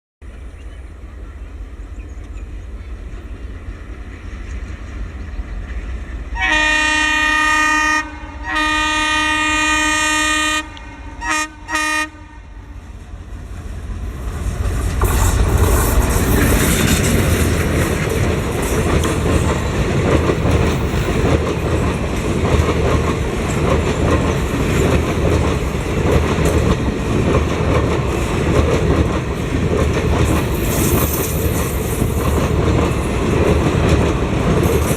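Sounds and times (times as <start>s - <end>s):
train running on rails: 0.2s - 34.9s
locomotive horn blasts: 6.4s - 12.8s.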